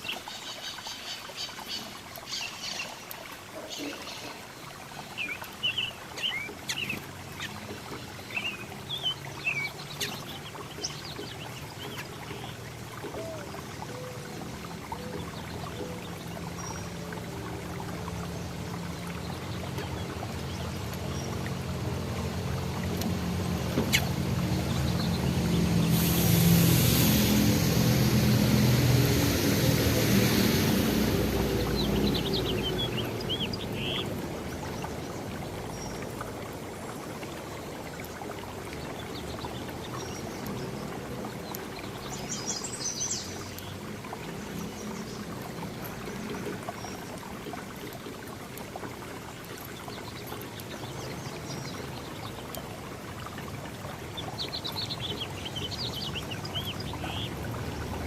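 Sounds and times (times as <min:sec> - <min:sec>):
background hiss: 0:25.6 - 0:31.7.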